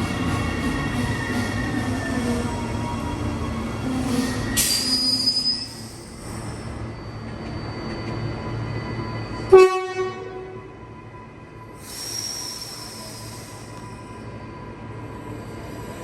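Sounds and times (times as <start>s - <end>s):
train low rumble: 0.0s - 16.0s
air hiss with squeal: 3.6s - 9.5s, 11.7s - 14.4s
train horn blast: 9.5s - 10.8s.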